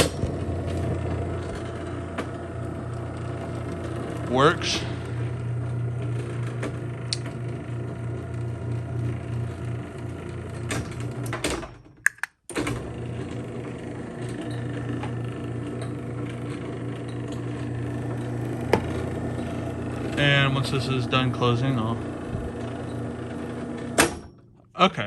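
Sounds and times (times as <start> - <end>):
garage door opener motor humming: 0.0 - 24.7
sharp clicks: 12.1 - 12.4.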